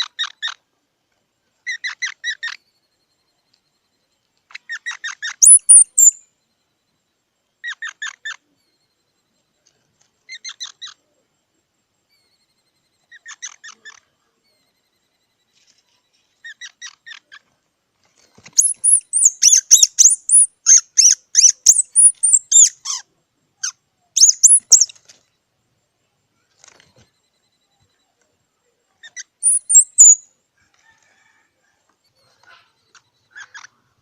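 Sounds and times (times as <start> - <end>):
squirrel chirping: 4.6 - 6.2, 18.6 - 23.0, 23.6 - 25.0, 29.0 - 30.3
squirrel squeaking rapidly: 4.7 - 6.2, 18.6 - 23.0, 23.6 - 25.0, 29.0 - 30.2.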